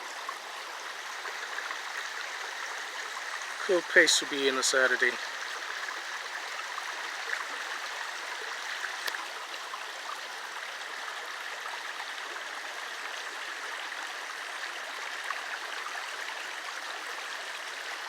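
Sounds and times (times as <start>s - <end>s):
river flowing over rocks: 0.0s - 18.0s.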